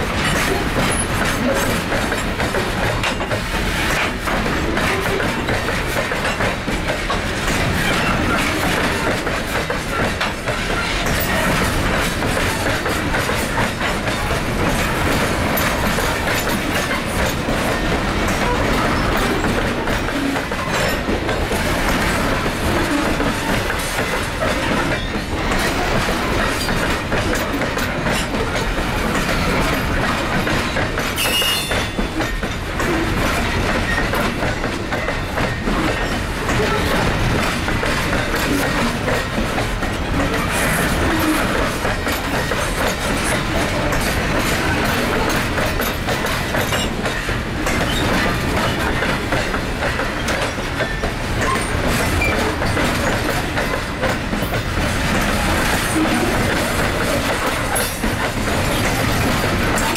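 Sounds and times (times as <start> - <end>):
train wheels clacking on rails: 0.0 - 59.9
high wheel squeal: 31.2 - 32.0.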